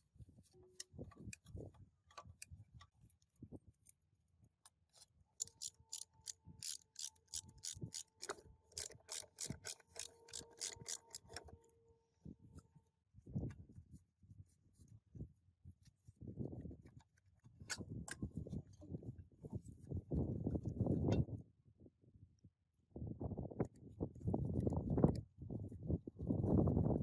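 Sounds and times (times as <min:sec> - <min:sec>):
metal parts being handled: 0:05.4 - 0:11.5.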